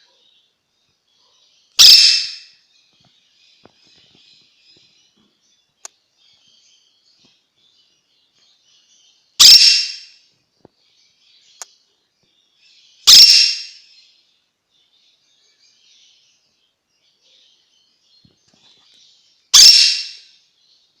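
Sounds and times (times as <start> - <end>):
soft bird chatter: 0.0 - 21.0
parrot squawks: 1.8 - 2.5, 9.4 - 10.1, 13.1 - 13.8, 19.5 - 20.3.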